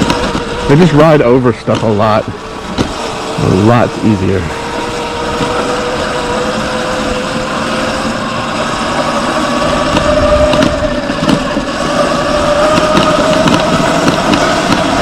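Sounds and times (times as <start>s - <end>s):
bike clattering over rough ground: 0.0s - 15.0s
electric motor whining: 0.0s - 15.0s.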